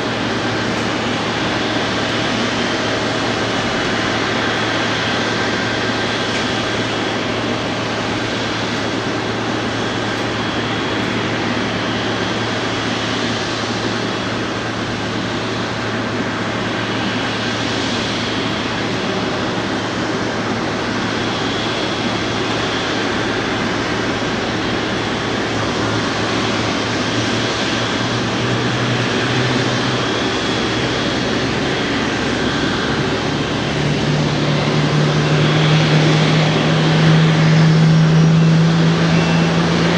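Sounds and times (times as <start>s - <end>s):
jet engine rush: 0.0s - 39.9s
faint high whine: 29.1s - 39.9s.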